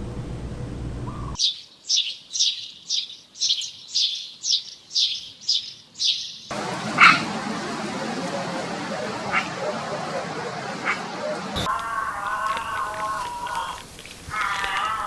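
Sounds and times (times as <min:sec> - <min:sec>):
low steady hum: 0:00.0 - 0:01.4
bird chirping: 0:01.1 - 0:07.2.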